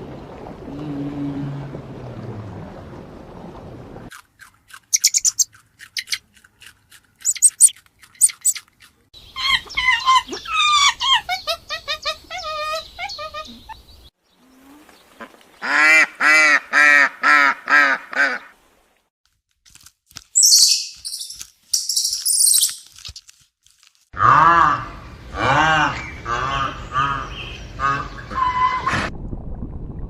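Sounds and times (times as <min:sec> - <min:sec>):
high bird chirps: 0:04.9 - 0:06.2, 0:07.2 - 0:11.6, 0:20.4 - 0:22.8.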